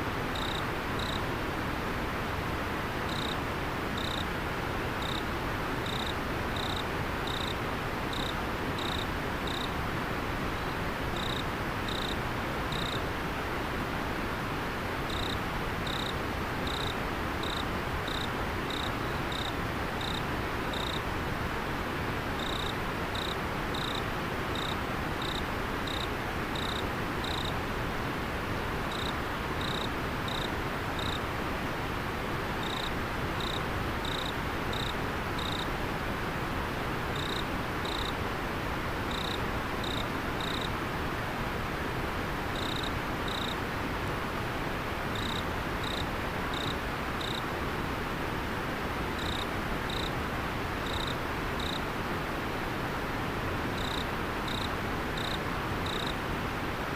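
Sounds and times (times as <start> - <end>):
cricket chirping: 0.3 - 1.2, 3.1 - 3.4, 4.0 - 4.3, 5.0 - 5.2, 5.8 - 9.7, 10.6 - 13.0, 15.1 - 21.0, 22.4 - 27.6, 28.9 - 31.2, 32.6 - 35.7, 37.2 - 38.1, 39.1 - 40.7, 42.6 - 43.6, 45.2 - 47.4, 49.2 - 50.1, 50.8 - 51.8, 53.8 - 56.2.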